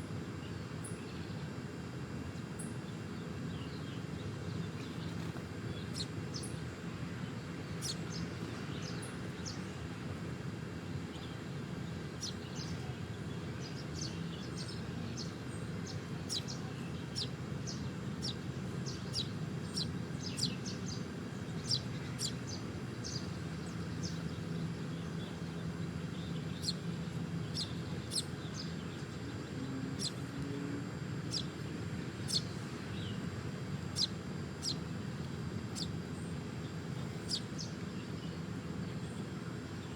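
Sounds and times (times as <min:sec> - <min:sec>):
small birds chirping: 0:02.6 - 0:09.8, 0:11.0 - 0:39.9
low background rumble: 0:10.9 - 0:39.9.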